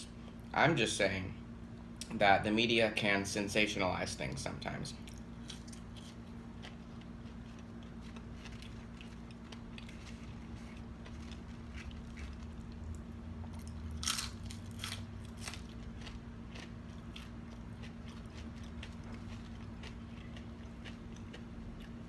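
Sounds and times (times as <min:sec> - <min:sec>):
steady low hum: 0:00.0 - 0:22.0
chewing and biting fries: 0:05.0 - 0:22.0.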